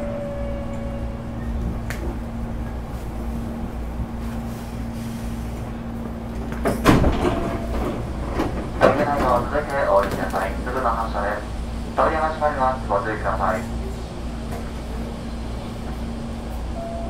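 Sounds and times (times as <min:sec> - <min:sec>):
train equipment humming: 0:00.0 - 0:17.0
train doors sliding shut: 0:00.6 - 0:11.3.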